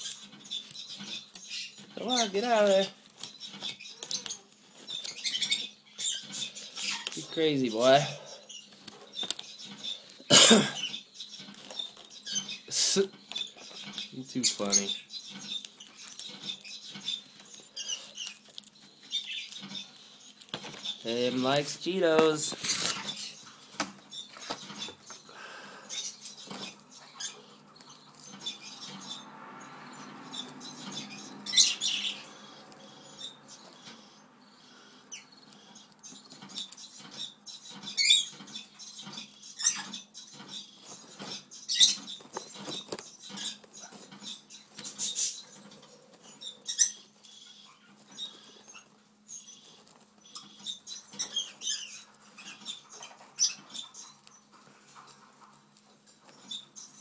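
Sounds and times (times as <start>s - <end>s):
chip bag crinkling: 18.0s - 23.2s.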